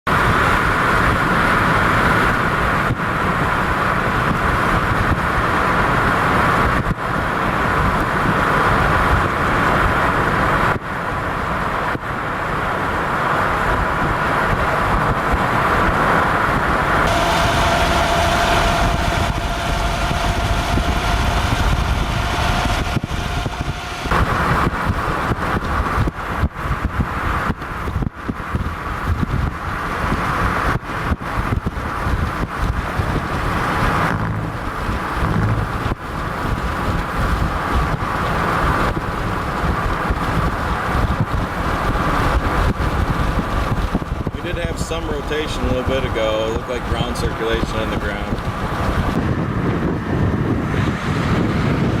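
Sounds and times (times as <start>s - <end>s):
car road and wind noise: 0.0s - 52.0s
steady tone: 17.0s - 25.8s, 33.0s - 36.3s.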